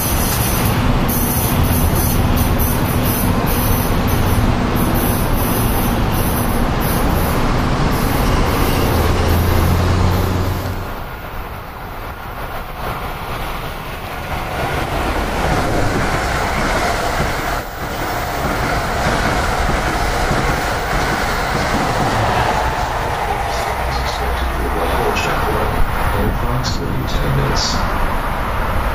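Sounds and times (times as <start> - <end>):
commuter train rolling past: 0.0 - 28.9
loud rumble with low hum: 20.6 - 28.2.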